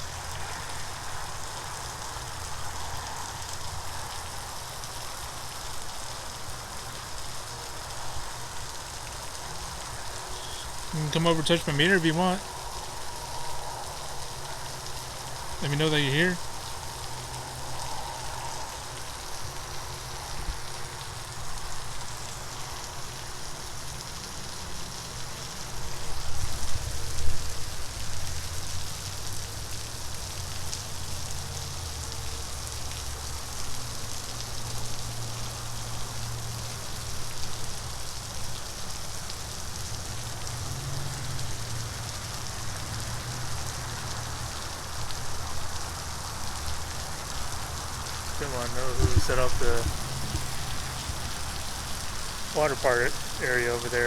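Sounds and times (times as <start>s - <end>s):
water spraying and splattering: 0.0s - 54.0s
low rumbles: 48.2s - 54.0s.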